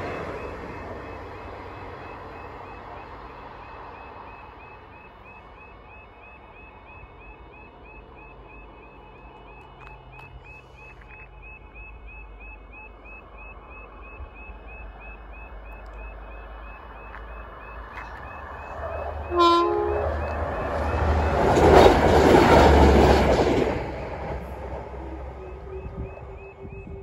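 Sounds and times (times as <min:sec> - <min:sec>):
train rushing past: 0:00.0 - 0:27.0
train horn: 0:19.2 - 0:21.0
level crossing alarm warbling: 0:25.2 - 0:27.0.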